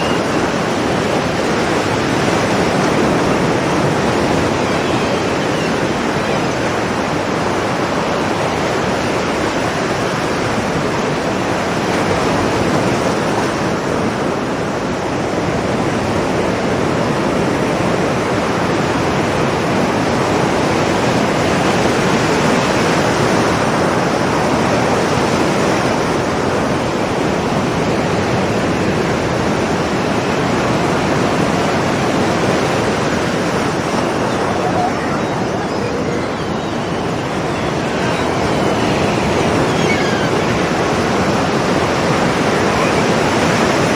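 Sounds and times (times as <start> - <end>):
ocean surf breaking on rocks: 0.0 - 43.9.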